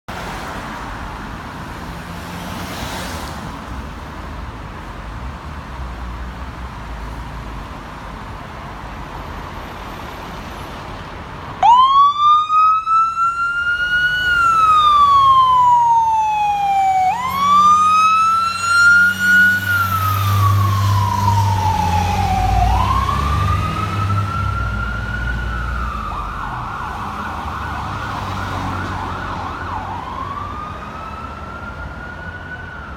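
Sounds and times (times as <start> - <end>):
fire engine siren wailing: 11.6 - 32.9.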